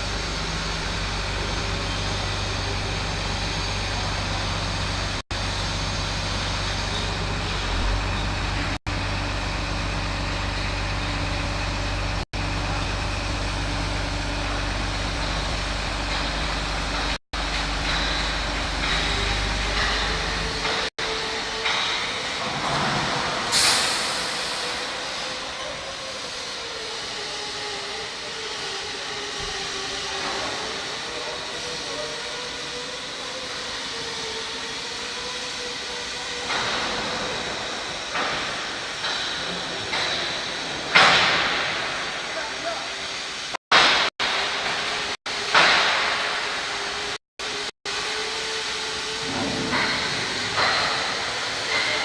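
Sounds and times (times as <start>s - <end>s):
diesel truck engine running: 0.0s - 25.6s
air brake hiss: 23.3s - 28.0s.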